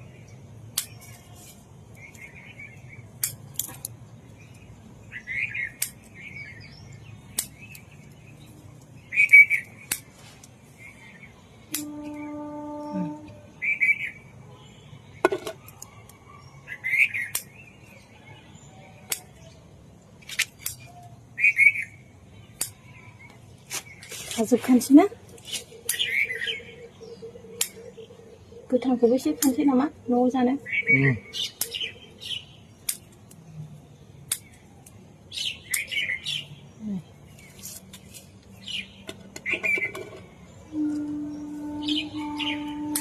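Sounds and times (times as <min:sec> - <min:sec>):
small bird chirping: 0:20.4 - 0:43.0.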